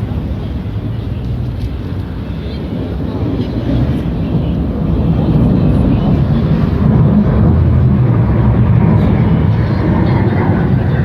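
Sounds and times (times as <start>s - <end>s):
aircraft flying low overhead: 0.0s - 11.0s.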